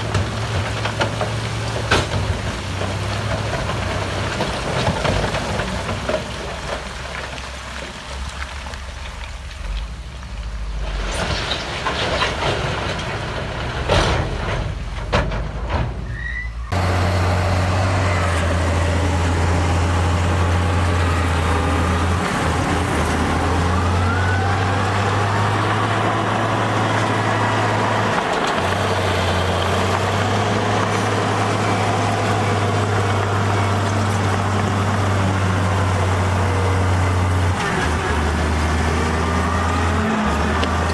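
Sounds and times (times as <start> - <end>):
diesel machinery engine running: 16.7 - 40.9.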